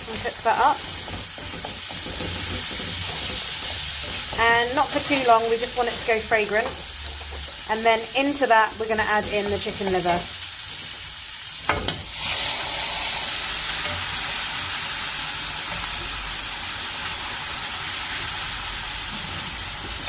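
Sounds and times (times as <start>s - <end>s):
wooden spoon stirring: 0.0s - 10.0s
meat sizzling in a pan: 0.0s - 20.0s.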